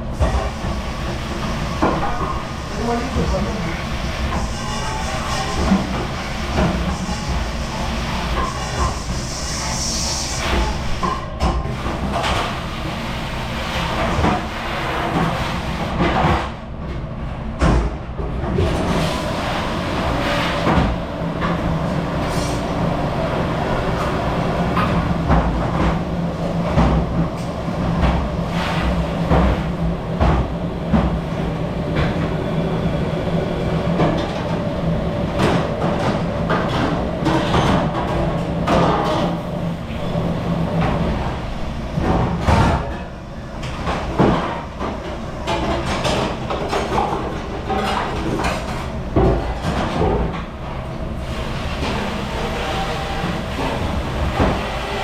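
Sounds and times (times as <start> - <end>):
dishwashing machine humming: 0.0 - 55.0
dishes and racks clattering: 40.8 - 50.5.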